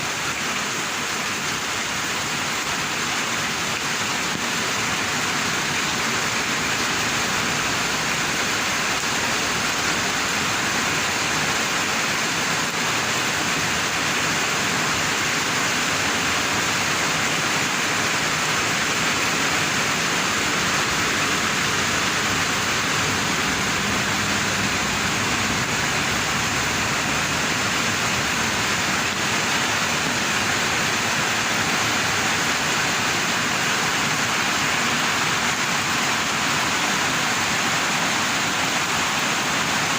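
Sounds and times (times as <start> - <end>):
rain in strong wind: 0.0 - 39.9.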